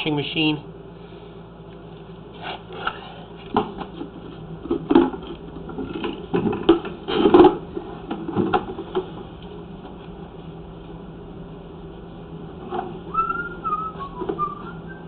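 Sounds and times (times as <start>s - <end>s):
steady low hum: 0.0s - 15.0s
knocks and rattles in drain pipe: 3.5s - 9.3s.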